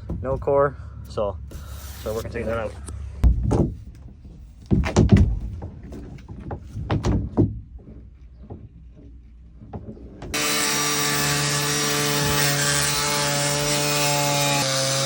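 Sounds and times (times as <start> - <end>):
tools thudding in boat hull: 3.2 - 3.9.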